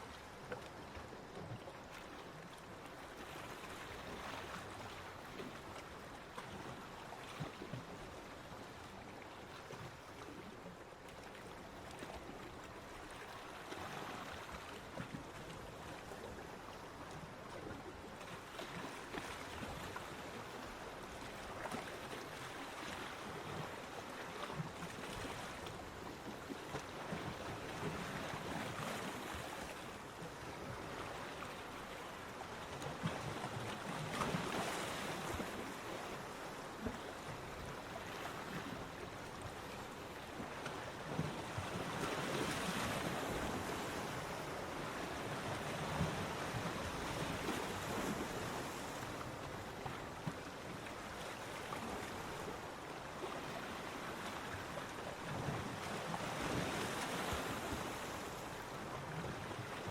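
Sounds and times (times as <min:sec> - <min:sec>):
sea waves washing onto beach: 0:22.2 - 0:59.9.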